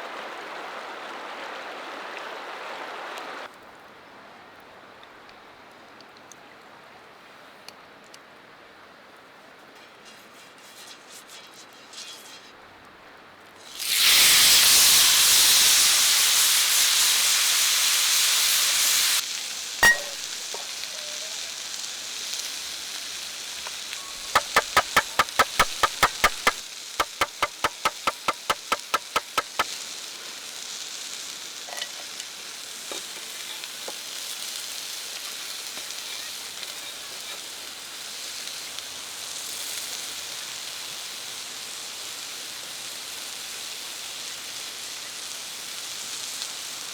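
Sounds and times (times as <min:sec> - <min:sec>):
steak sizzling in a pan: 0:13.7 - 0:37.4
sharp knock: 0:19.8 - 0:20.3, 0:24.3 - 0:29.6
rapid clicks: 0:24.2 - 0:29.7.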